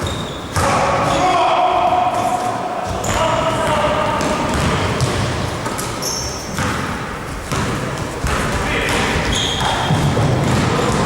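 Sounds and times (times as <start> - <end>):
sneaker squeaks: 0.0 - 1.2, 2.2 - 11.0
basketball bouncing on court: 2.8 - 11.0.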